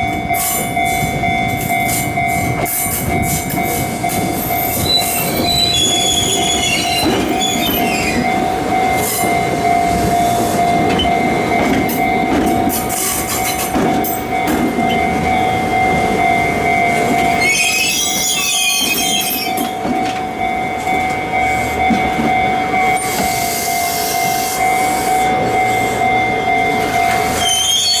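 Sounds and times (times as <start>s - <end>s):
electric train rumbling past: 0.0s - 28.0s.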